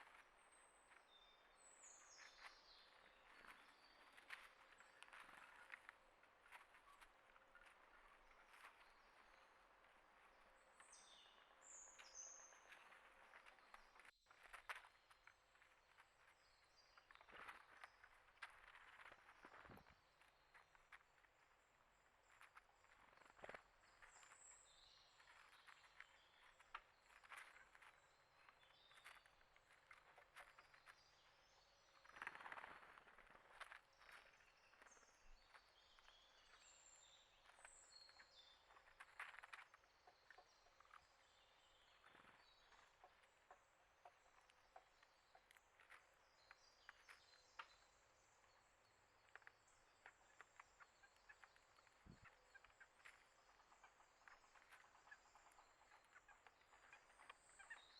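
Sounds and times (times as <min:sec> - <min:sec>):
small clicks and rustles: 0:00.0 - 0:57.9
faint high bird chirps: 0:23.1 - 0:57.9.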